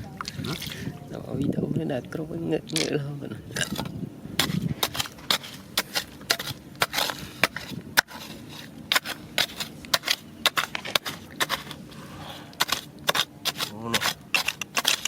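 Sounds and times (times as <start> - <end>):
stones clacking on stone: 2.7 - 11.9, 12.6 - 15.0.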